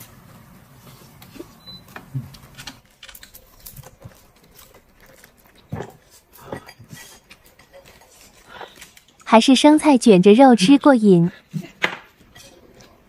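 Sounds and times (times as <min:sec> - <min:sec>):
chewing and crunching lettuce: 0:02.3 - 0:09.3.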